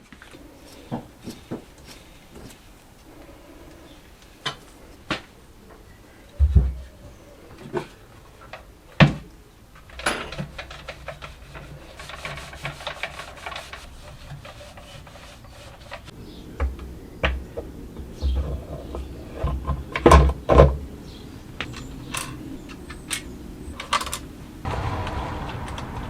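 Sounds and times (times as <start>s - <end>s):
tools and parts knocking: 9.8s - 13.6s.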